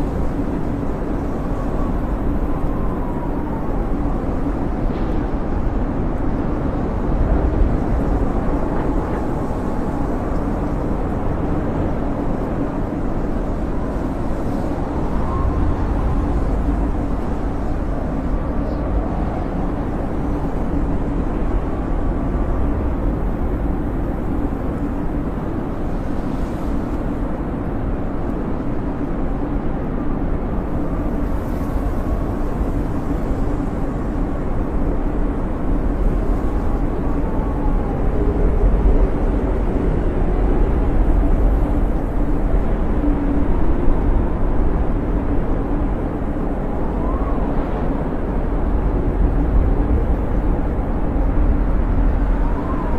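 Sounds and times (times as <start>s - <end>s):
snowstorm wind rumbling and whistling: 0.0s - 52.9s.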